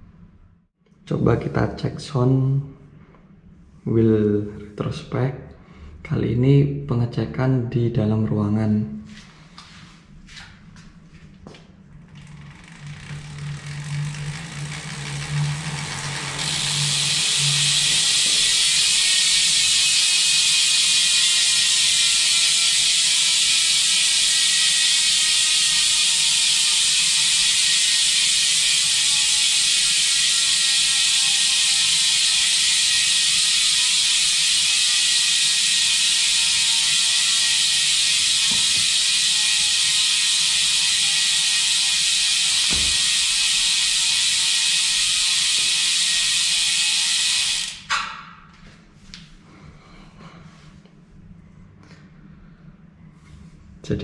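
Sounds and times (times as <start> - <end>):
shrill buzz of freewheeling wheel: 11.8 - 48.0
bicycle freehub ratchet clicking: 12.0 - 48.0.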